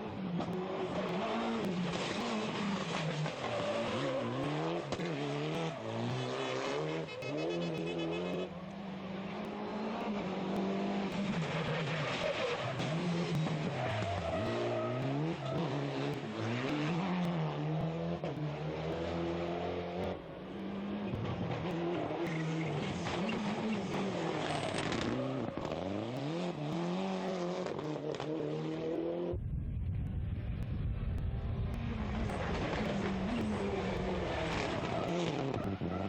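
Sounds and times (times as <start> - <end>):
rally car engines revving: 0.0 - 29.4, 30.0 - 36.0
deep low rumble: 29.3 - 34.3.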